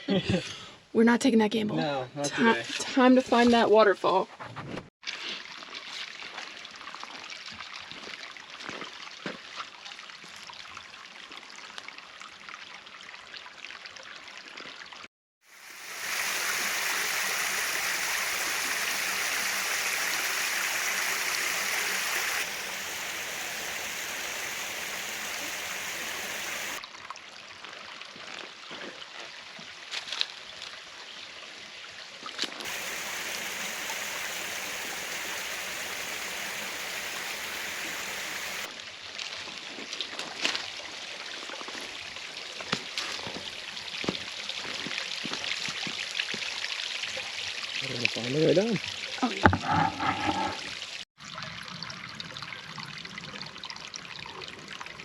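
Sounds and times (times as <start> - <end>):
creek water trickling over rocks: 5.0 - 55.0
rush of falling water: 15.5 - 26.8, 32.6 - 51.0.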